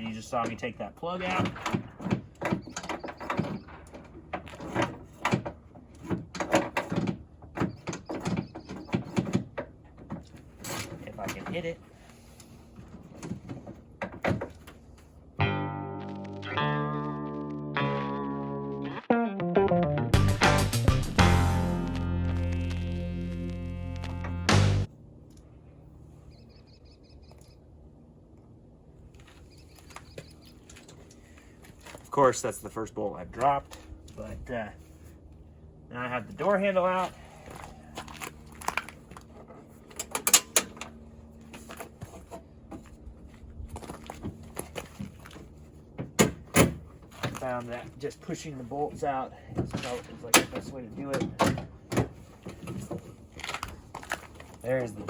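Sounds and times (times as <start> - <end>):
outdoor background noise: 0.0 - 19.1, 21.5 - 55.0
small bird chirping: 26.3 - 27.6, 29.5 - 30.7.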